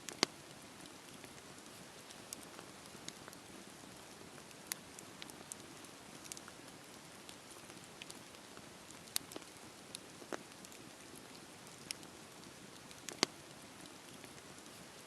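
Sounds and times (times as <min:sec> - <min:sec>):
campfire hissing: 0:00.0 - 0:15.0
wood crackling and popping: 0:00.0 - 0:15.0.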